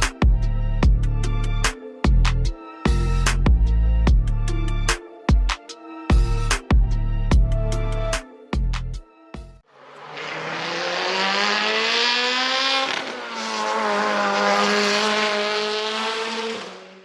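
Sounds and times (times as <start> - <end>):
sports car engine revving: 9.8 - 17.0.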